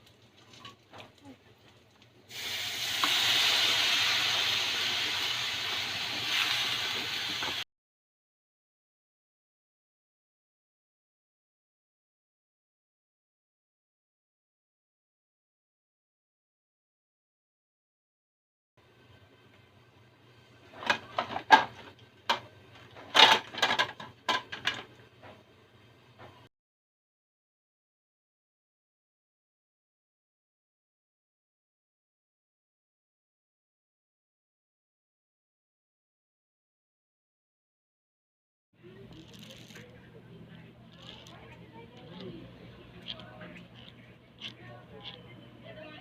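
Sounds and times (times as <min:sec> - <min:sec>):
household objects clattering: 0:20.7 - 0:25.4.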